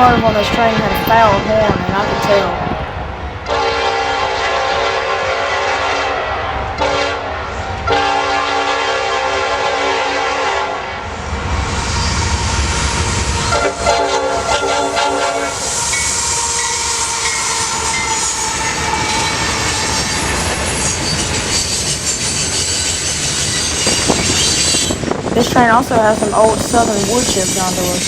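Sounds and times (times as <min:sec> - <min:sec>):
freight train cars rumbling past: 0:00.0 - 0:28.0
locomotive horn blasts: 0:03.5 - 0:07.3, 0:07.9 - 0:10.9, 0:13.0 - 0:20.3.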